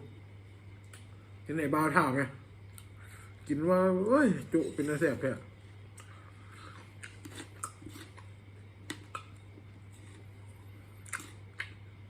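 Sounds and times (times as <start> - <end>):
steady low hum: 0.0 - 12.0
person chewing food: 5.8 - 12.0.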